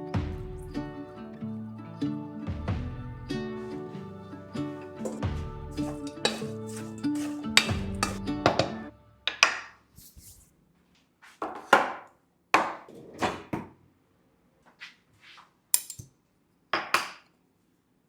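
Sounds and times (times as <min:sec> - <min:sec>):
knife chopping on cutting board: 0:05.8 - 0:08.7, 0:11.4 - 0:13.7.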